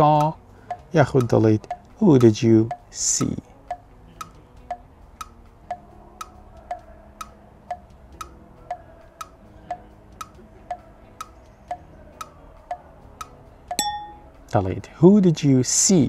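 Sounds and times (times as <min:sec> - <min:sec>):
clock ticking: 0:00.0 - 0:12.8.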